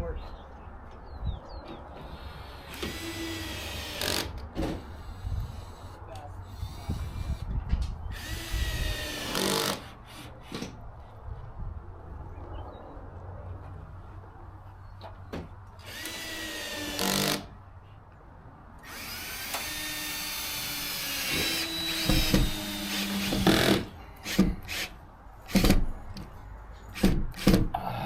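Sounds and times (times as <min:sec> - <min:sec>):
power drill running: 0:02.1 - 0:04.3, 0:08.1 - 0:09.9, 0:15.8 - 0:17.4, 0:18.8 - 0:24.9.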